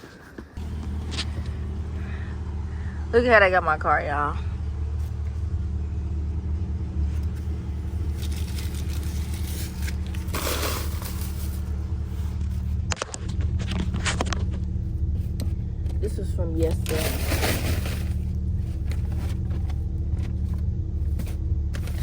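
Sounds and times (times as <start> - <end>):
car engine idling: 0.6 - 22.0
rustling scrape: 7.2 - 14.5, 16.7 - 19.8.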